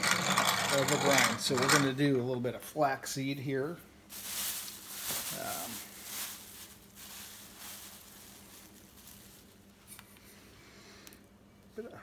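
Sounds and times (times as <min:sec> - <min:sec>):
bag rustling: 0:04.1 - 0:09.6.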